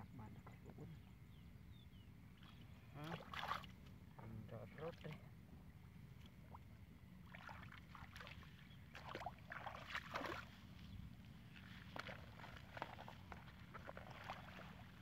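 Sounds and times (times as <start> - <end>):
splashing in a muddy puddle: 2.4 - 3.8, 7.2 - 10.8, 11.4 - 15.0.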